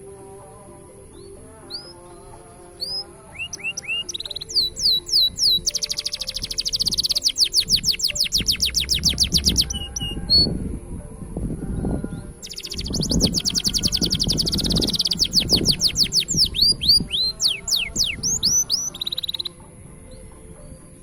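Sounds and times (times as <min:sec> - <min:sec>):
canary singing trills: 0:00.0 - 0:10.6, 0:11.7 - 0:21.0
low rumbling noise: 0:08.4 - 0:17.2.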